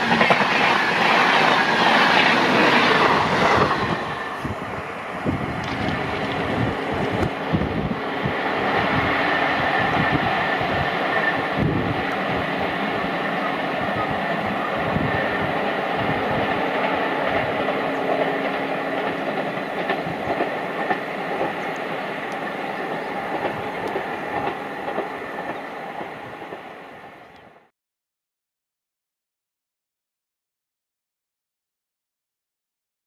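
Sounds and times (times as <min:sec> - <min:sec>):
train wheels clattering on rails: 0:00.0 - 0:04.6, 0:09.8 - 0:27.3.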